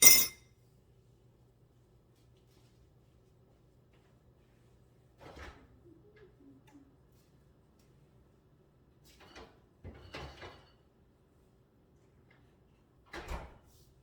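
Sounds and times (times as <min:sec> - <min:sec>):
brief metallic ringing: 0:00.0 - 0:00.3.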